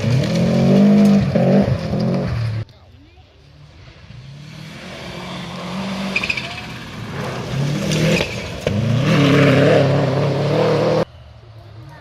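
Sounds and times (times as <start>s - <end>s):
rally car engine revving: 0.0s - 2.6s, 4.1s - 11.1s.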